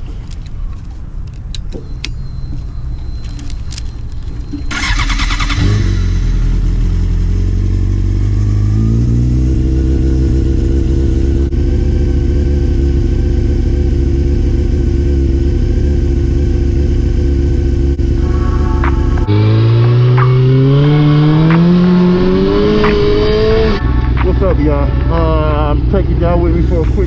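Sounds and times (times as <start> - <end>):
vehicle engine running: 0.0 - 27.0
rattly engine burst: 4.7 - 6.7.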